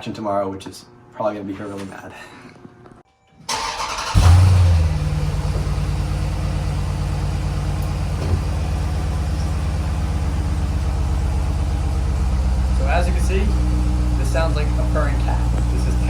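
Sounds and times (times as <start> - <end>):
car engine starting and idling: 3.5 - 16.0.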